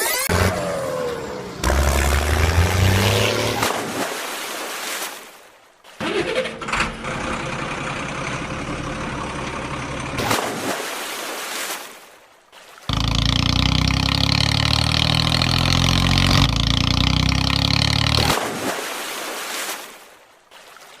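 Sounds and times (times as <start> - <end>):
vehicle engine drone: 0.0 - 4.0, 6.4 - 10.4, 12.9 - 18.7.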